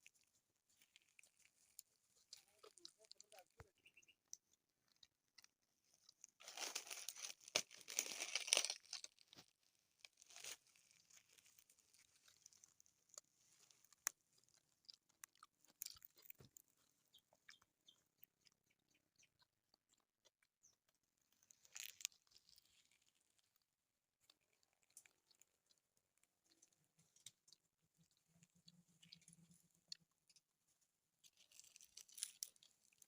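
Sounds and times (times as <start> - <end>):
crunchy chewing: 0.0 - 33.0.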